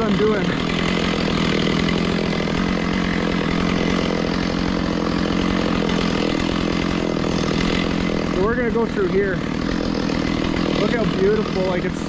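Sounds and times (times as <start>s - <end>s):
small petrol engine running: 0.0s - 12.0s.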